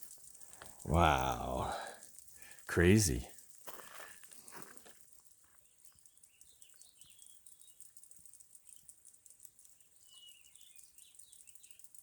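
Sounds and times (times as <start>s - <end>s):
insects crackling and snapping: 0.0s - 0.8s, 3.4s - 12.0s.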